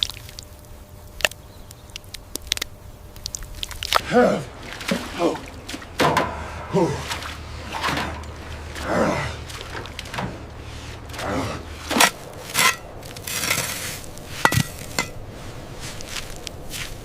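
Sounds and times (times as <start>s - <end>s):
metal tools scraping steel: 11.9s - 15.2s.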